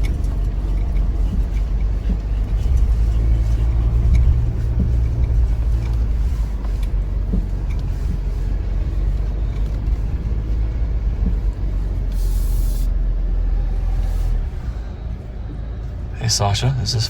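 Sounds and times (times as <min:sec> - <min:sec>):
light knocks and rattles: 0:00.0 - 0:12.1
truck rumbling over dirt trail: 0:00.0 - 0:17.0.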